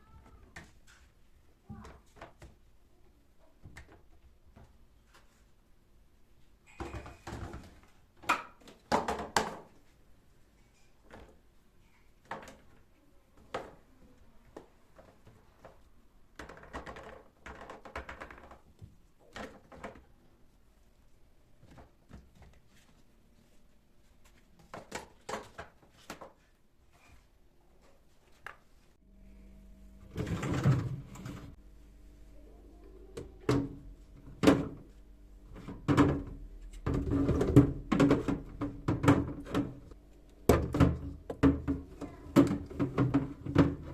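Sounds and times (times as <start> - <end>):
steady low hum: 29.0 - 42.4.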